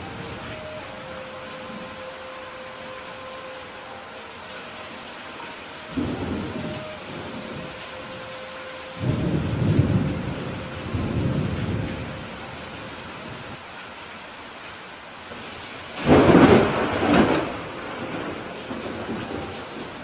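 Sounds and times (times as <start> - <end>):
steady rain: 0.0 - 20.0
rolling thunder rumble: 5.9 - 8.1, 8.9 - 12.5, 16.0 - 20.0.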